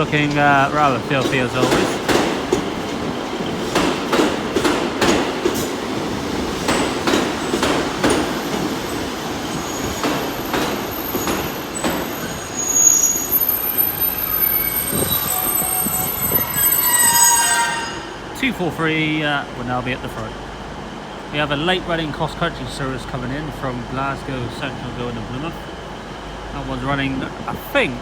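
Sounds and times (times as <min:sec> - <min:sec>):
train wheels clicking over rail joints: 0:00.0 - 0:12.5
brake and wheel squeal: 0:09.5 - 0:18.4.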